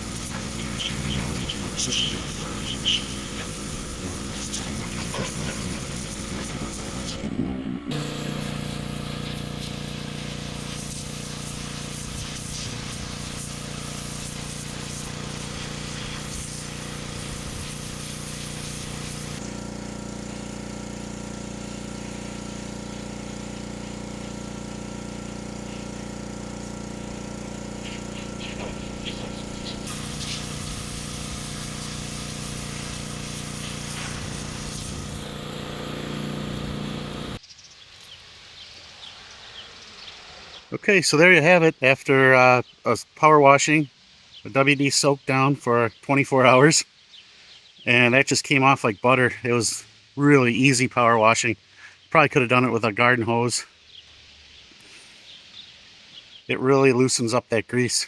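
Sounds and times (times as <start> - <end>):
pressure washer spray hiss: 0.0 - 7.2, 7.9 - 37.4
pressure washer motor drone: 0.0 - 37.4.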